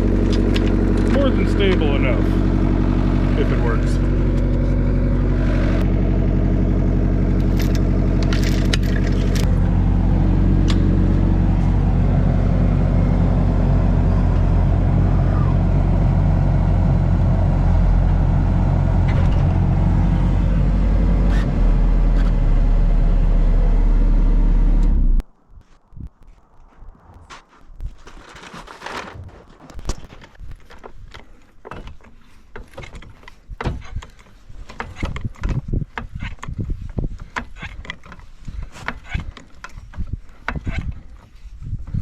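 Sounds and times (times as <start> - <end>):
excavator diesel engine running: 0.0 - 25.2.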